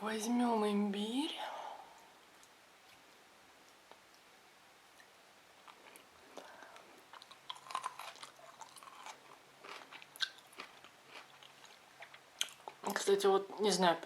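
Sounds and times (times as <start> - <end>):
person chewing crunchy food: 5.0 - 12.9.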